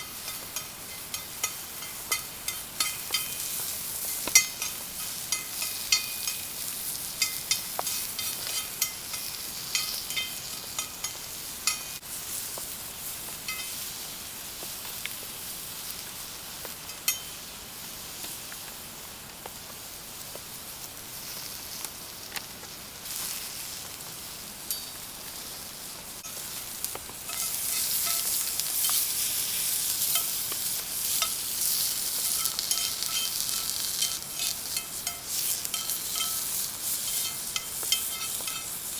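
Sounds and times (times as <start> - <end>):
food sizzling in a pan: 0.0 - 38.9
stirring clicks: 26.2 - 38.9.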